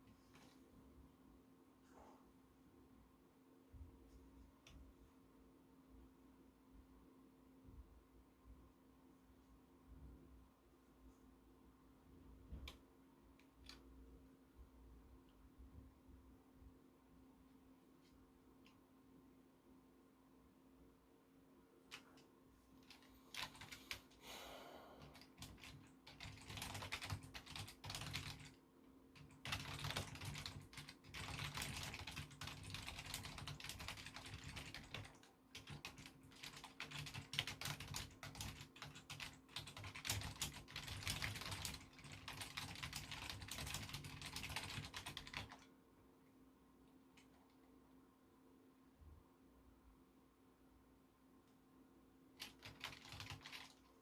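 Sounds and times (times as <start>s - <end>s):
typing on computer keyboard: 21.8s - 24.2s, 25.0s - 45.7s, 52.4s - 54.0s.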